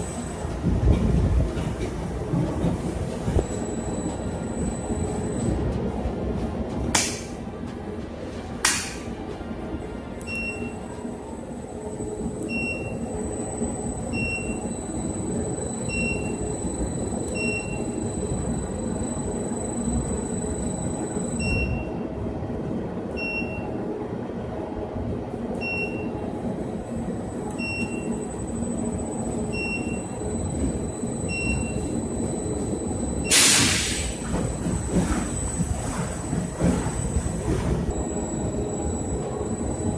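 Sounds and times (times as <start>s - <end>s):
short high-pitched beeps: 12.5s - 21.9s, 29.5s - 33.4s.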